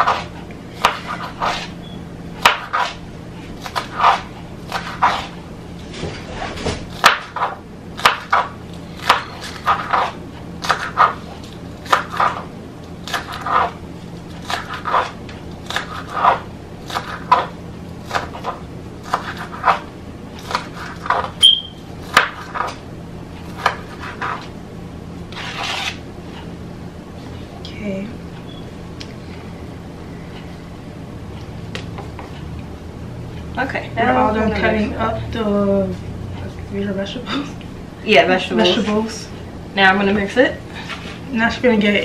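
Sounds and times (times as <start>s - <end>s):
knife chopping on cutting board: 0.0s - 1.7s, 2.4s - 3.0s, 3.6s - 5.4s, 6.0s - 11.2s, 11.8s - 13.8s, 14.4s - 21.4s, 22.0s - 22.8s, 23.5s - 24.5s.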